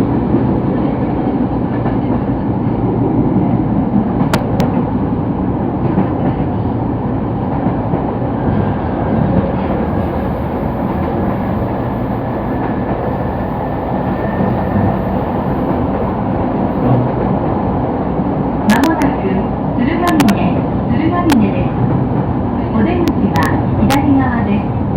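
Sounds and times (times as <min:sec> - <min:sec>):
train wheels rumbling: 0:00.0 - 0:24.9.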